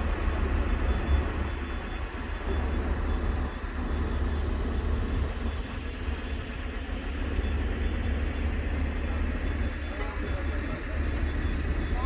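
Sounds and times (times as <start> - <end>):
heavy vehicle engine rumbling: 0.0 - 12.0.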